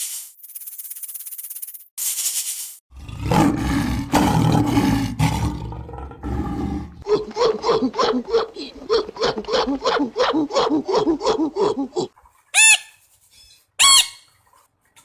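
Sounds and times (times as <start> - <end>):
big cat roaring: 2.9 - 10.4.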